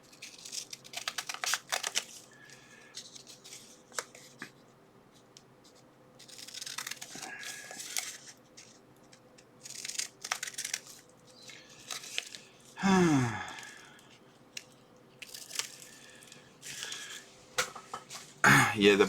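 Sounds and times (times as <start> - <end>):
plastic packaging crinkling: 0.0 - 2.3, 9.6 - 12.7, 14.6 - 17.3.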